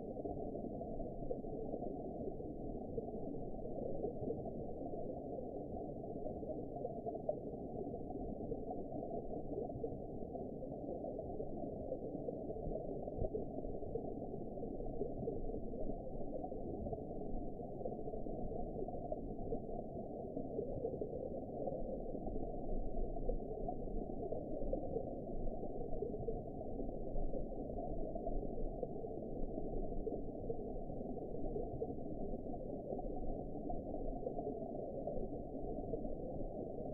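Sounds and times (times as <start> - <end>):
muffled underwater water noise: 0.0 - 36.9.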